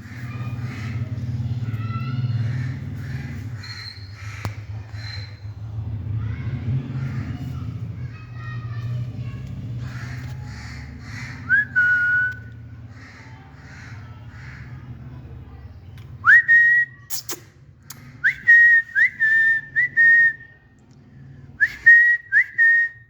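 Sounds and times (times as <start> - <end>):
sharp click: 17.1 - 18.1
loud rising whistles: 18.2 - 20.5.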